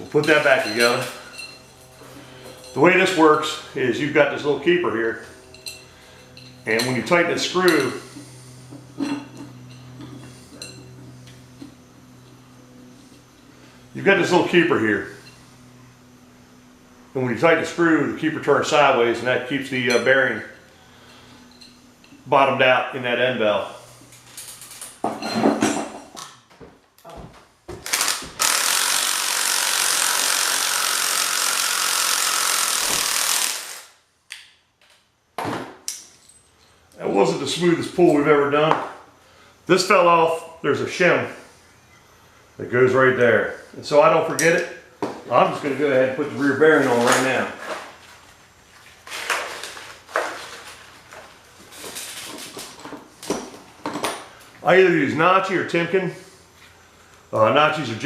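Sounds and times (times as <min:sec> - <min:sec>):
tools knocking and scraping: 0:07.7 - 0:11.8, 0:24.2 - 0:26.4, 0:51.7 - 0:54.3
mechanical ratcheting: 0:27.8 - 0:34.0.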